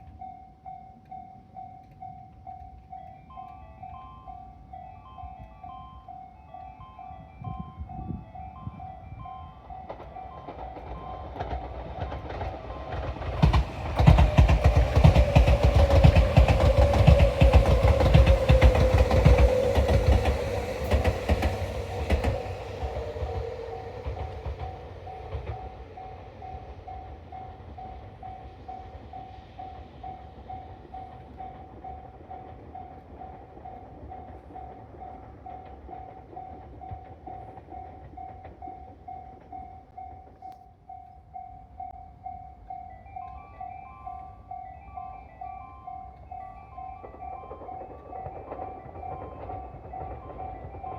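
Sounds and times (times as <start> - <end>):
electric train passing at speed: 0.0 - 50.9
wheels clattering over rail joints: 9.6 - 29.1, 46.8 - 50.9.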